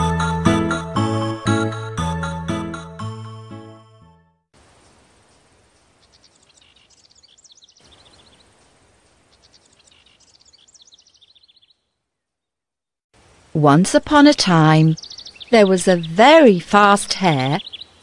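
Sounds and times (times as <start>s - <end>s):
soft outdoor hiss: 4.6s - 12.4s, 13.2s - 18.0s
high-pitched bird chirping: 14.7s - 18.0s.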